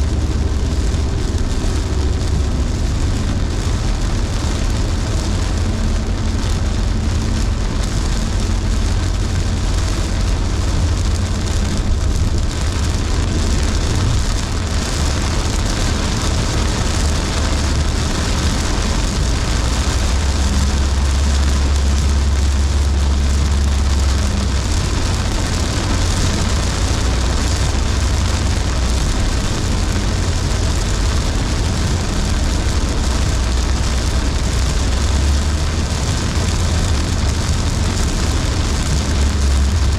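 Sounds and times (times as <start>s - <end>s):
car road rumble: 0.0s - 39.9s
rain and wet tyres hissing: 0.0s - 39.9s.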